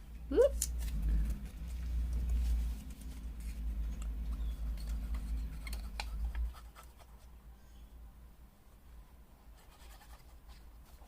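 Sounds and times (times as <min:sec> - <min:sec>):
low steady rumble: 0:00.0 - 0:06.7.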